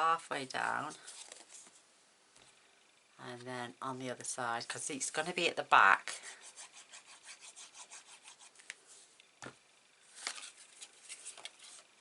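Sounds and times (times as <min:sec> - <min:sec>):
paper rubbing and scraping: 0:06.4 - 0:09.1, 0:10.2 - 0:11.9.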